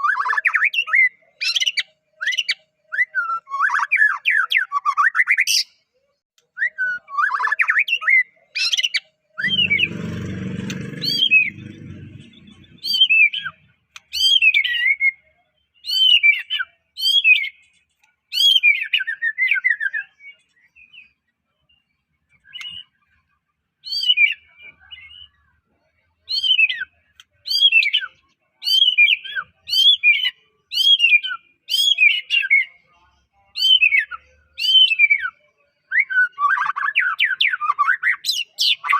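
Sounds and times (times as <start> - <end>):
bird singing whistled phrases: 33.6 - 38.9.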